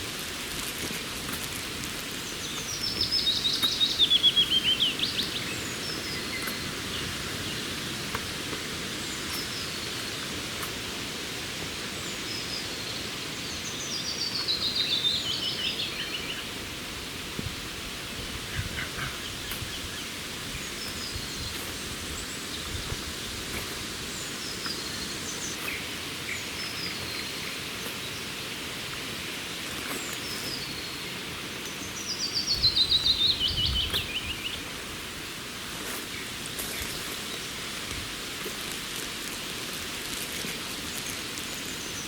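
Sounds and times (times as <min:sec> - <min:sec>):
steady hiss: 0:00.0 - 0:42.0
songbirds chirping and calling: 0:01.4 - 0:10.8, 0:18.4 - 0:28.7, 0:29.7 - 0:34.9.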